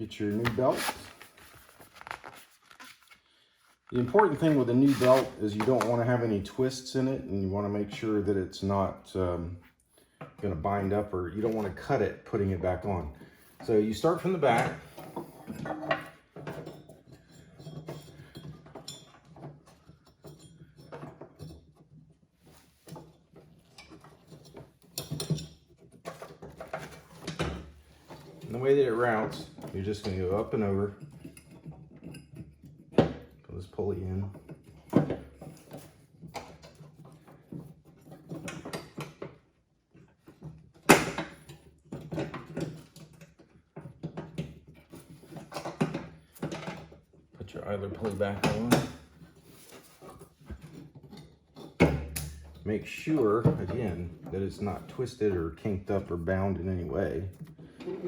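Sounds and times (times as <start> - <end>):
light metallic clinks and knocks: 14.5 - 22.0.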